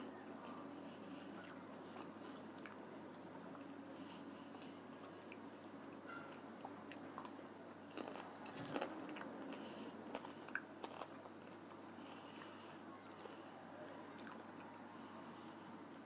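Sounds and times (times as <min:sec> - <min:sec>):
person chewing crunchy food: 0:01.2 - 0:02.8, 0:04.4 - 0:13.5, 0:14.1 - 0:14.7.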